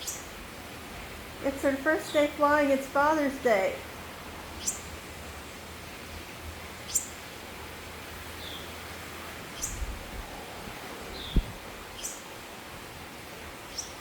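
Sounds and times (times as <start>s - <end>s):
outdoor background noise: 0.0s - 14.0s
bird chirping: 4.6s - 4.9s, 9.6s - 9.9s.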